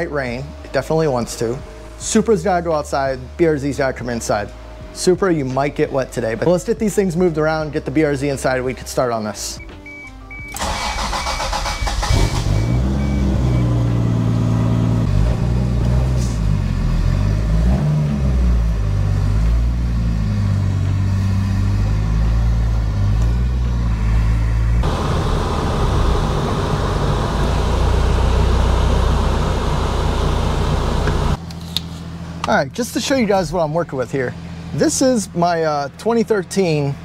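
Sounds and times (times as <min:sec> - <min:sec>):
car engine running at low speed: 0:12.1 - 0:31.4.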